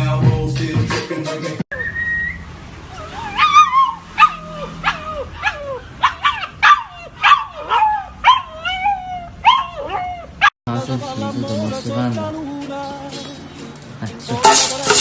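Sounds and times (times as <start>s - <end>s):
puppy whining yelps: 2.9s - 10.5s.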